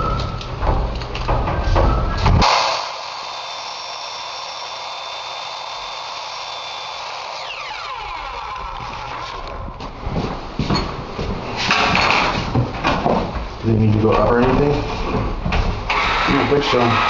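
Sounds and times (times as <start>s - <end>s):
power drill whining: 2.4s - 9.8s, 15.9s - 17.0s.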